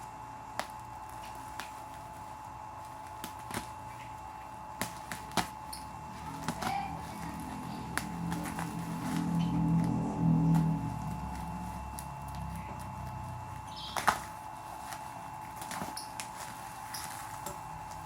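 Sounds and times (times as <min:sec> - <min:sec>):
faint steady hum: 0:00.0 - 0:18.0
music: 0:06.7 - 0:12.9.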